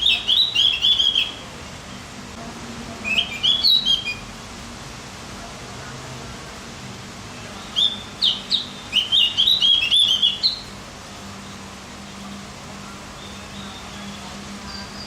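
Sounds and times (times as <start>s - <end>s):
bird singing high chirps: 0.0s - 1.5s, 3.0s - 4.3s, 7.5s - 10.8s, 12.8s - 15.0s.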